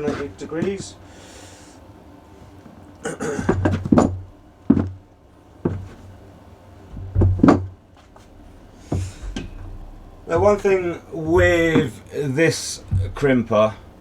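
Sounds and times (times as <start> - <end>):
heavy cable knocking on workbench: 3.3 - 6.1, 6.9 - 12.1, 12.8 - 13.9.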